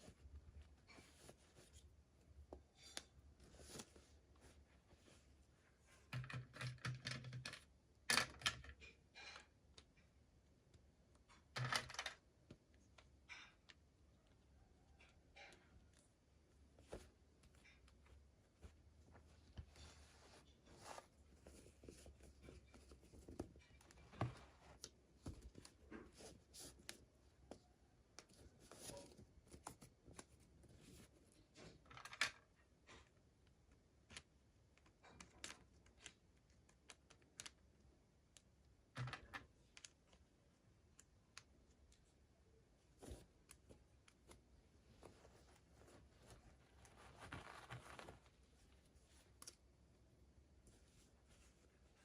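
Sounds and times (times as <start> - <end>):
plastic and cardboard rustling: 16.6 - 27.6, 42.9 - 49.6.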